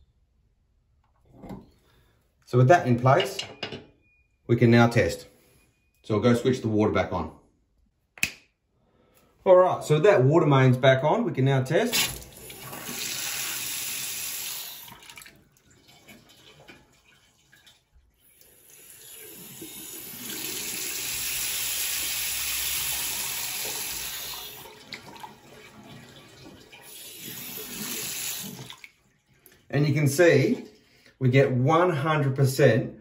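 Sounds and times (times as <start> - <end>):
tap water running into sink: 12.0 - 29.6.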